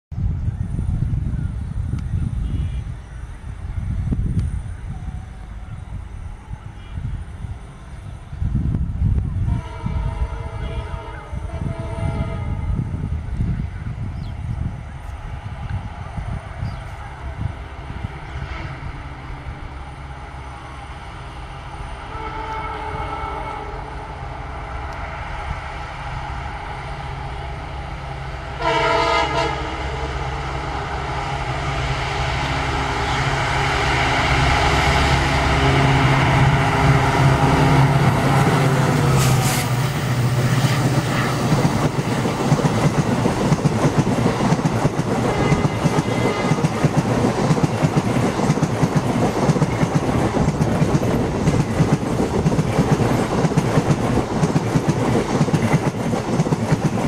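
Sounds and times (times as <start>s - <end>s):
diesel locomotive engine drone: 0.1s - 57.0s
train horn blast: 9.4s - 13.1s, 18.1s - 19.6s, 22.0s - 24.3s, 28.5s - 41.5s, 45.2s - 46.7s
wheels clickety-clack on track: 39.0s - 57.0s.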